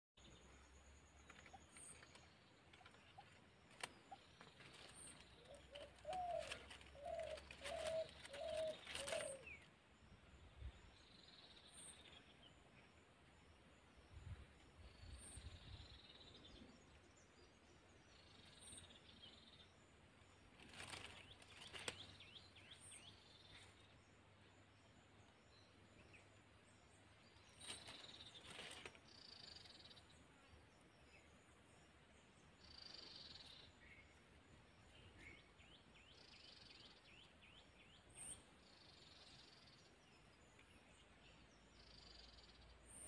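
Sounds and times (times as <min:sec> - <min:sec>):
faint high bird calls: 0:01.3 - 0:09.7
rustle of dry leaves: 0:01.3 - 0:09.8, 0:18.2 - 0:24.0, 0:27.0 - 0:30.2.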